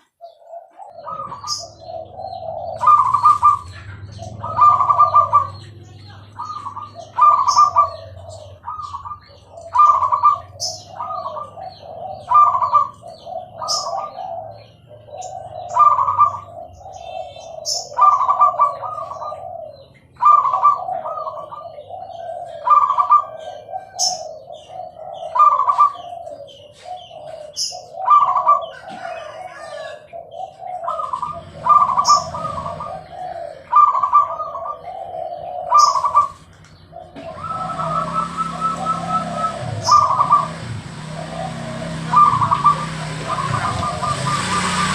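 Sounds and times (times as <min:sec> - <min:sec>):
dove cooing song: 0:00.0 - 0:44.9
steady rushing noise: 0:37.2 - 0:44.9.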